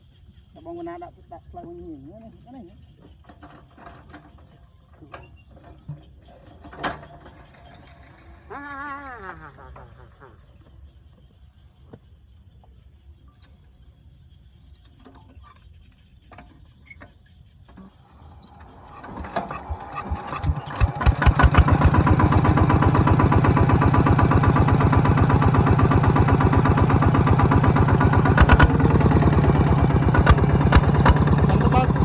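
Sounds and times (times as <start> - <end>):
farm machine engine running: 18.5 - 32.0.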